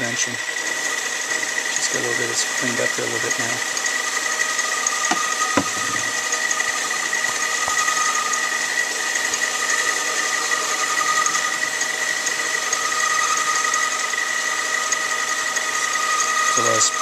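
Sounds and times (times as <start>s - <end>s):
lathe machine whine: 0.0s - 17.0s.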